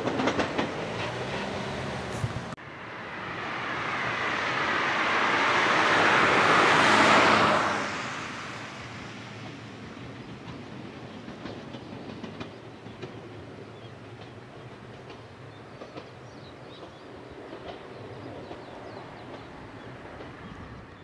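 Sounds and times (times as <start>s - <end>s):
wheels clicking over rails: 0.0s - 2.3s
electric train rumbling: 0.0s - 21.0s.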